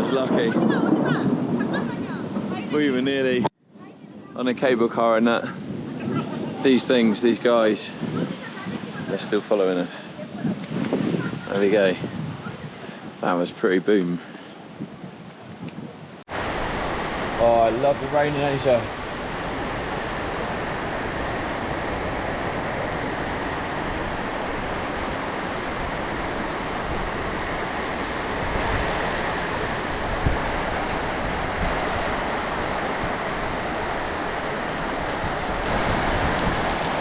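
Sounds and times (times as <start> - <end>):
heavy rain pouring: 0.0 - 3.4, 16.3 - 37.0.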